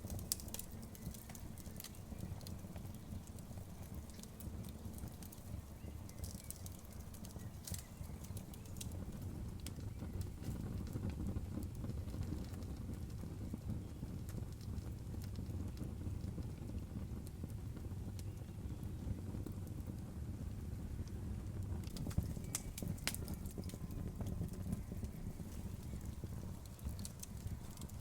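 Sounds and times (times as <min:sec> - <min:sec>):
low fire rumble: 0:00.0 - 0:28.0
wood fire crackling and popping: 0:00.0 - 0:28.0.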